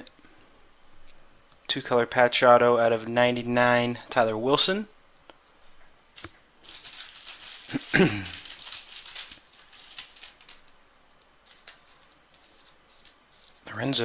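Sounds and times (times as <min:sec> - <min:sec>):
plastic sleeves crinkling: 0:06.1 - 0:14.0.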